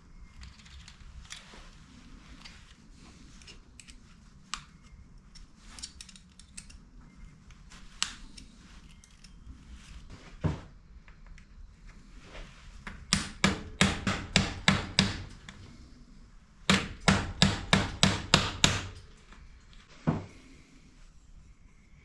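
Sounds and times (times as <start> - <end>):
light clicks and taps of tools: 0.3 - 10.0, 11.0 - 12.0.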